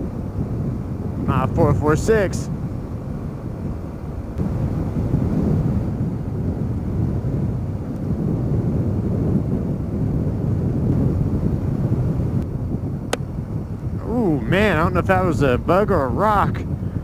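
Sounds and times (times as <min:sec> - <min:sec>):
wind rush on microphone: 0:00.0 - 0:17.0.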